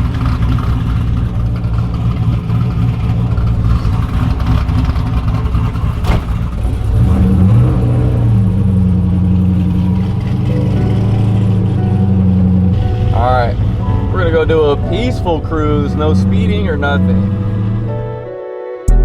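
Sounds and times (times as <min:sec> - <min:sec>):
car engine running: 0:00.0 - 0:18.2.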